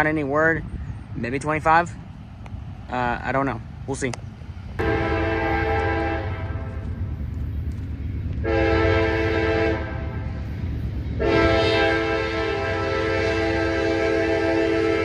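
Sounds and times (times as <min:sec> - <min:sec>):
train rumble: 0:00.0 - 0:15.0
locomotive air horn: 0:04.8 - 0:06.9, 0:08.4 - 0:10.2, 0:11.2 - 0:15.0.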